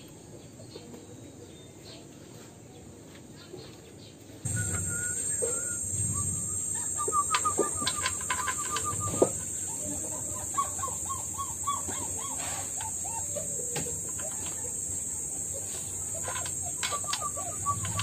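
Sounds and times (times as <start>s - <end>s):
bird chirping: 3.6s - 18.0s
steady high-pitched buzz: 4.5s - 18.0s.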